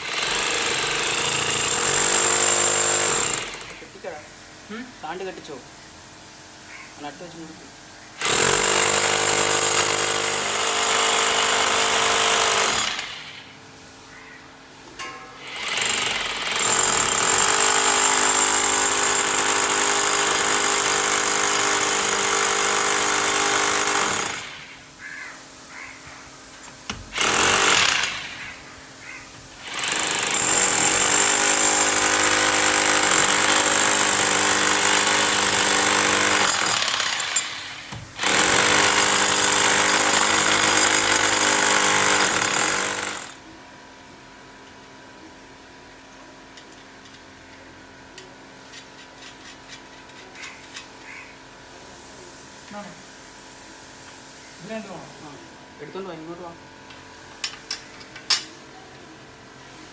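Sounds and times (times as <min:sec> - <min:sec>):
hammer drill boring into wall: 0:00.0 - 0:03.8, 0:08.2 - 0:13.4, 0:15.4 - 0:24.8, 0:26.9 - 0:28.6, 0:29.6 - 0:43.4.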